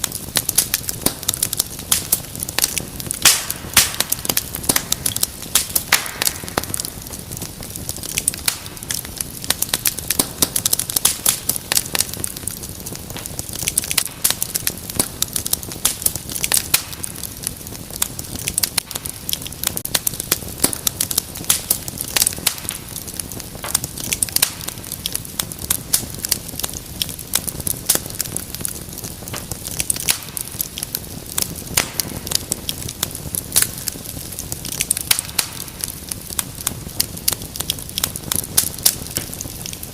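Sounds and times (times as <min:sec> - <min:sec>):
hiss of flames: 0:00.0 - 0:39.9
wood fire crackling and popping: 0:00.0 - 0:39.9.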